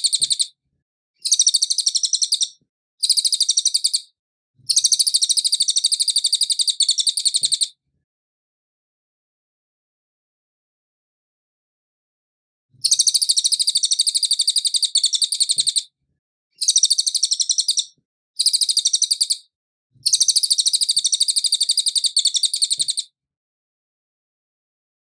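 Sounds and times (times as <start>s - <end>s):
bird high-pitched trill: 0.0s - 0.5s, 1.2s - 4.1s, 4.7s - 7.7s, 12.8s - 15.8s, 16.6s - 19.4s, 20.1s - 23.0s.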